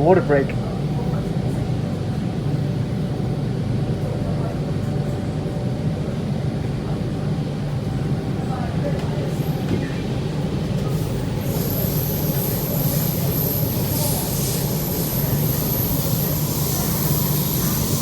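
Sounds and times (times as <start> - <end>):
train rumble and hum: 0.0 - 18.0
wheel and rail hissing: 10.8 - 18.0.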